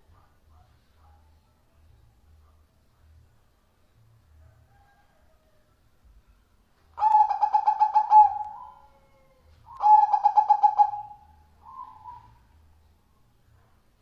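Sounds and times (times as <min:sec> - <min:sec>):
dove cooing: 0:07.0 - 0:12.4.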